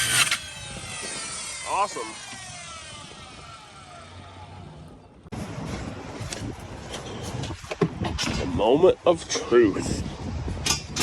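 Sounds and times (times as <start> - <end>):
power saw winding down: 0.0 - 4.7.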